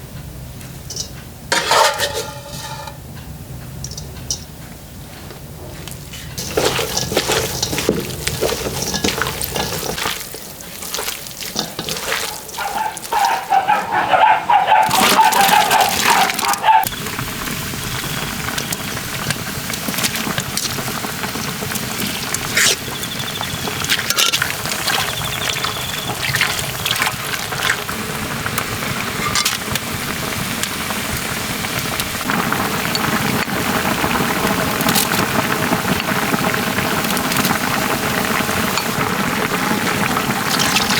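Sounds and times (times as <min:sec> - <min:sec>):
liquid sloshing and stirring: 0:06.4 - 0:16.9, 0:17.8 - 0:32.3, 0:40.0 - 0:40.9
stew bubbling in a pot: 0:06.4 - 0:40.9.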